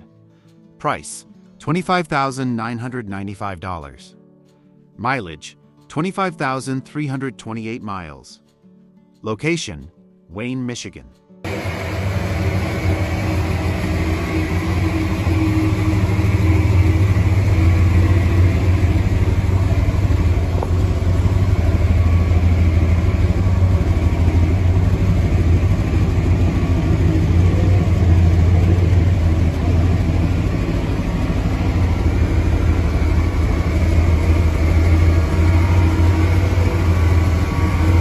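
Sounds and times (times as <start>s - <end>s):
engine running steadily: 11.5s - 38.0s.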